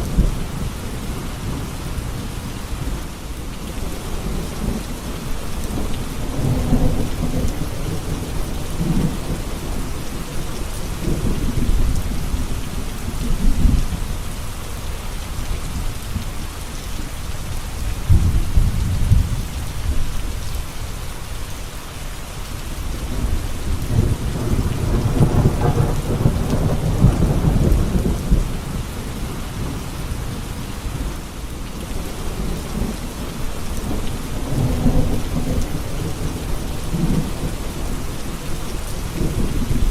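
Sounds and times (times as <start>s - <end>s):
steady rain: 0.0s - 39.9s
rolling thunder: 3.9s - 14.0s, 18.0s - 20.2s, 23.0s - 30.4s, 32.0s - 39.9s.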